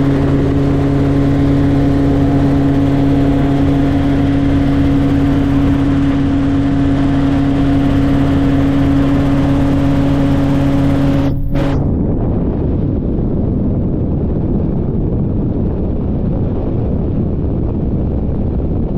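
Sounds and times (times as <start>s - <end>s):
helicopter engine and rotor drone: 0.0s - 12.0s
rushing wind-like noise: 0.0s - 18.9s.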